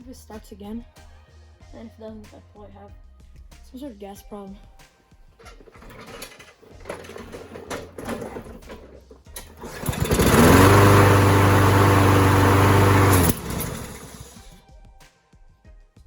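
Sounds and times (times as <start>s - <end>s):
lawnmower engine running: 5.5s - 14.6s
engine backfire: 5.6s - 14.6s.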